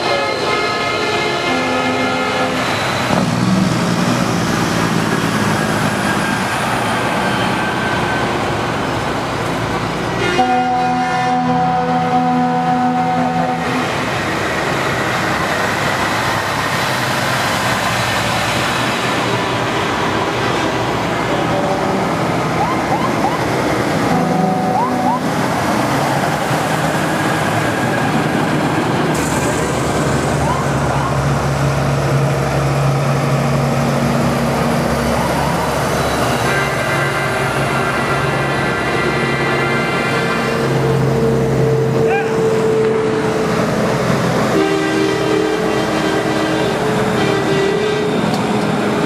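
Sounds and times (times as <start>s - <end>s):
diesel trucks rolling past: 0.0s - 49.0s
siren chirps: 24.4s - 25.3s.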